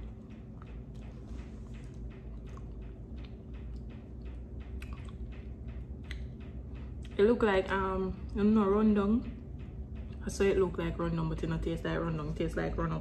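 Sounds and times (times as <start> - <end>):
person chewing food: 0.0 - 5.4
low room hum: 0.0 - 13.0
wet mouth clicks: 4.8 - 5.2.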